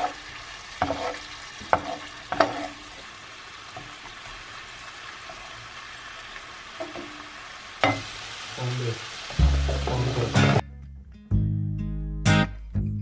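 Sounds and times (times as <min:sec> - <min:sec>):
food sizzling in a frying pan: 0:00.0 - 0:10.6
guitar music: 0:09.3 - 0:13.0.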